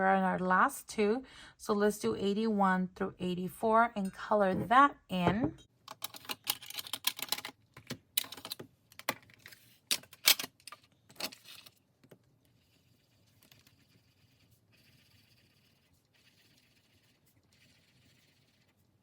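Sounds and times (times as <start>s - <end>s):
scribbling on paper: 12.6s - 18.9s.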